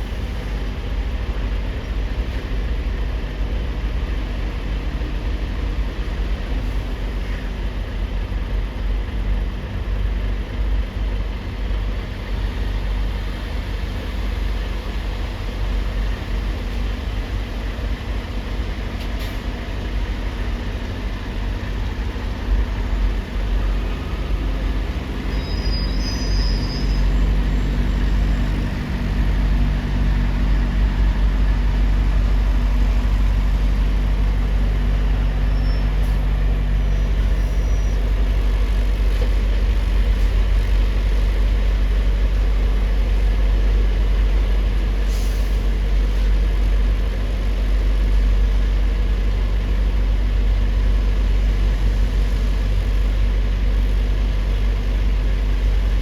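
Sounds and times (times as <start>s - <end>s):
heavy engine rumbling: 0.0s - 56.0s
faint high squeaks: 25.2s - 28.7s, 35.5s - 36.2s, 36.8s - 38.3s.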